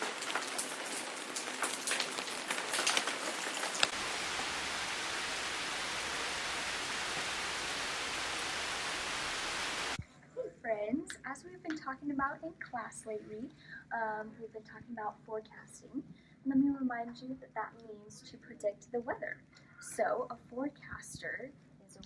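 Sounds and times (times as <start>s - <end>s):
rain drops pattering: 0.0s - 10.0s
steady rain hiss: 0.0s - 10.0s.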